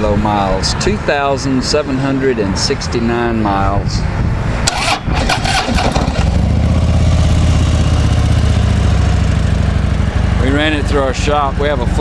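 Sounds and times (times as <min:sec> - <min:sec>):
motorcycle engine cranking and idling: 0:04.5 - 0:12.0
motorcycle starter click: 0:04.6 - 0:06.5.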